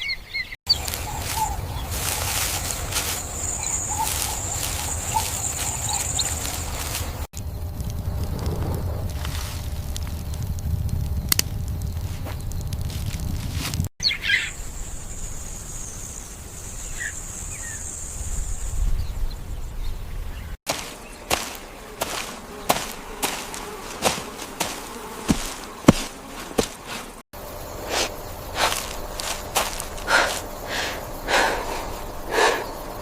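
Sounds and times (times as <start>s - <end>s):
high insect-like buzz: 0.7s - 13.6s, 20.7s - 33.0s
low rumble: 6.6s - 13.9s.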